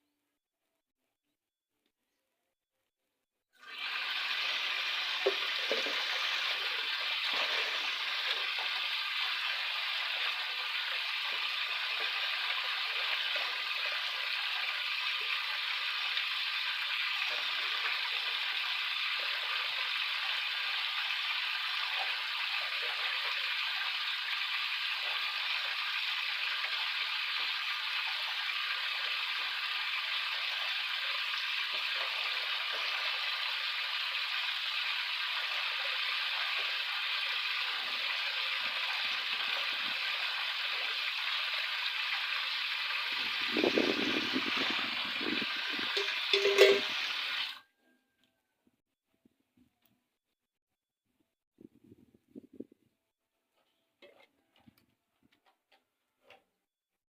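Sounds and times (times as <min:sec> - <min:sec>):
leaves rustling in wind: 0:43.1 - 0:47.1.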